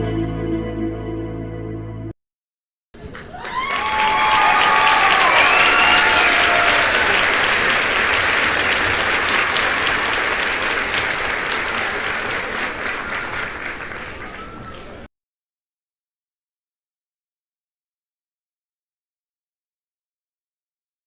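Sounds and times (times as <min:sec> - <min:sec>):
crowd applauding: 0:03.0 - 0:15.1.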